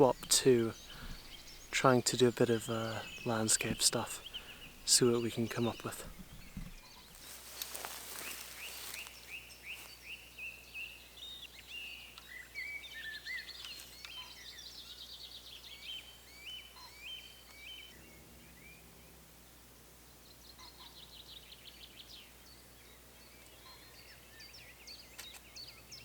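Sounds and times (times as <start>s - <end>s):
birds chirping and trilling: 0.0s - 26.0s
brief rustle: 6.0s - 9.2s.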